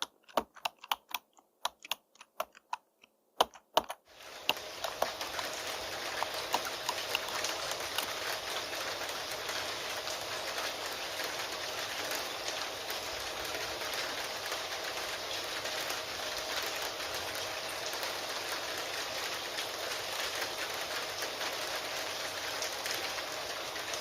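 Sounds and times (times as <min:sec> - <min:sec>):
typing on computer keyboard: 0:00.0 - 0:08.5
raindrop ticks: 0:00.0 - 0:24.0
steady rain hiss: 0:04.0 - 0:24.0.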